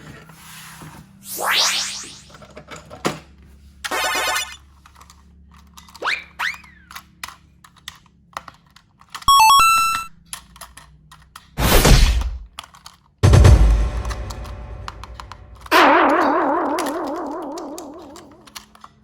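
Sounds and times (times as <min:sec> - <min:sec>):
electronic beeps: 0:09.3 - 0:10.1
clicks: 0:13.2 - 0:18.9.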